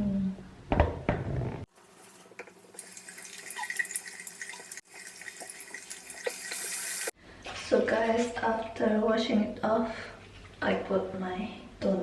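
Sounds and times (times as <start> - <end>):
splashing face washing: 1.7 - 7.1
tap water running into sink: 1.8 - 7.1.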